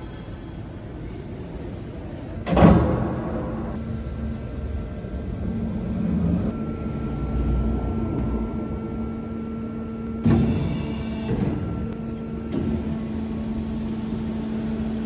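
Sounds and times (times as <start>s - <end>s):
band saw humming with whine: 3.8s - 15.0s.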